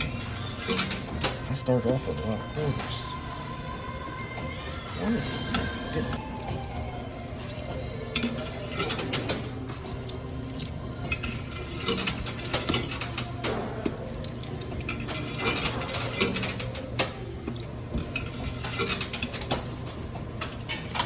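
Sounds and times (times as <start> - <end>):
coins clinking on metal shelves: 0.0 - 4.4, 5.2 - 21.0
machine humming: 0.0 - 21.0.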